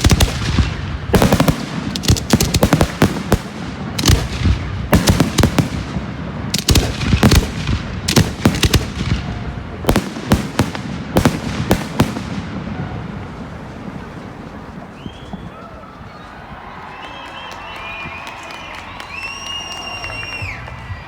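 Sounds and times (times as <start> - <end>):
fireworks exploding: 0.0 - 15.5.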